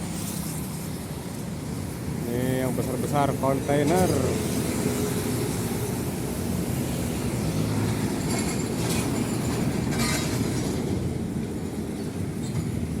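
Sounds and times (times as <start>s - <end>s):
heavy truck passing rumble: 1.7s - 13.0s.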